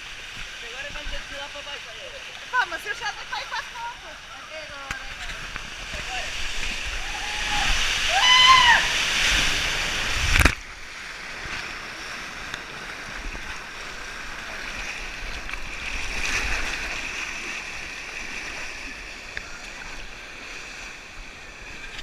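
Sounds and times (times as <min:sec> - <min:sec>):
steady water hiss: 0:00.0 - 0:22.0
water rushing down a slide: 0:05.0 - 0:20.2
person whooping: 0:07.0 - 0:09.0.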